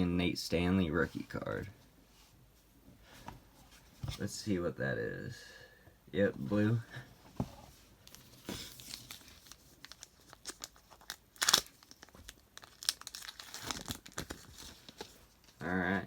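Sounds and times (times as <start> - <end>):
foil wrapper crinkling: 8.1 - 15.6
foil wrapper ripping: 8.8 - 14.7.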